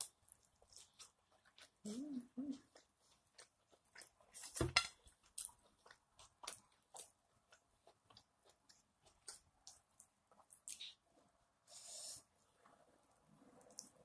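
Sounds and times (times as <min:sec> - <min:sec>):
person chewing steak: 0:00.0 - 0:01.9, 0:02.5 - 0:11.3.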